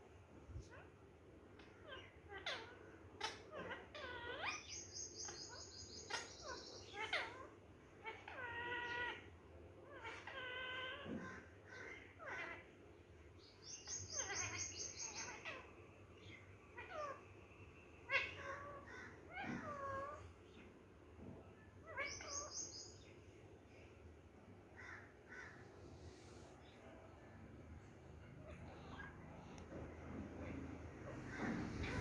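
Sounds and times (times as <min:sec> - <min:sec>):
parrot calling: 0:13.6 - 0:17.2, 0:18.1 - 0:20.3, 0:21.8 - 0:23.1.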